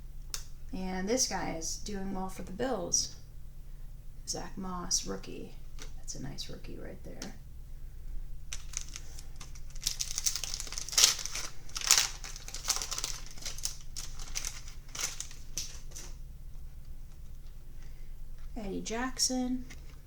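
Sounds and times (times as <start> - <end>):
foil wrapper crinkling: 8.5 - 16.2.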